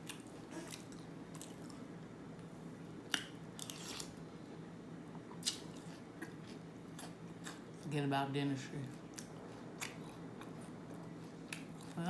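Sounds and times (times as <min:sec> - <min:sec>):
person chewing food: 0:00.0 - 0:01.9, 0:03.0 - 0:04.3, 0:05.2 - 0:07.8, 0:08.9 - 0:12.0.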